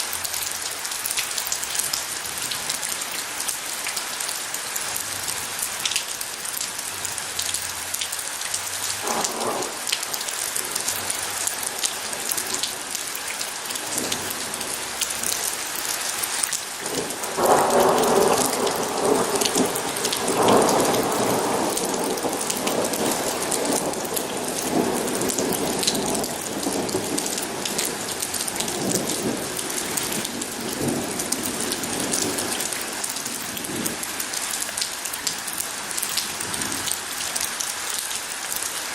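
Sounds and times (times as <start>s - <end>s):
steady rain falling: 0.0s - 38.9s
thunder rumbling: 9.0s - 10.0s, 16.8s - 34.1s.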